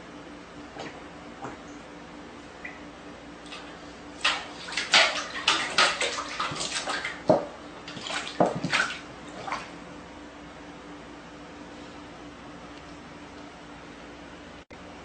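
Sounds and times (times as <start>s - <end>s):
water splashing: 3.4s - 9.8s.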